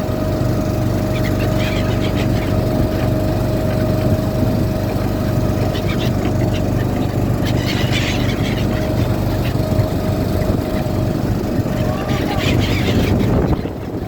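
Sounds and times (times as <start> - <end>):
small boat engine running: 0.0 - 14.0
high-pitched bird calls: 1.0 - 3.1, 5.6 - 9.7, 10.7 - 14.0.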